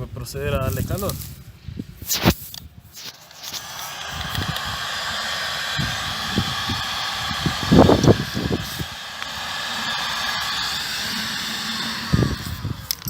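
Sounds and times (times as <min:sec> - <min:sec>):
heat gun blowing air: 0:02.0 - 0:13.0
faint motor whine: 0:03.0 - 0:13.0.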